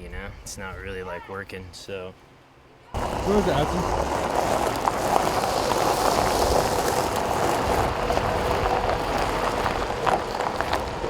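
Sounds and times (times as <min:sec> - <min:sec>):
steady rushing hiss: 0:03.0 - 0:11.0.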